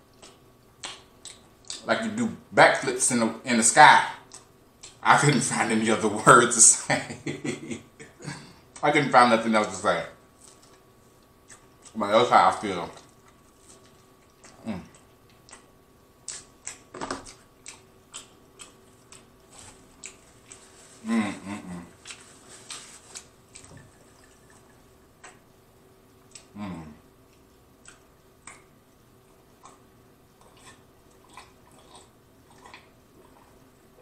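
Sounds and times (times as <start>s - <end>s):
wet chewing with mouth clicks: 0.0s - 1.9s, 4.2s - 5.0s, 10.4s - 12.0s, 12.9s - 25.5s, 26.2s - 34.0s
person humming: 21.0s - 22.0s, 26.5s - 27.0s.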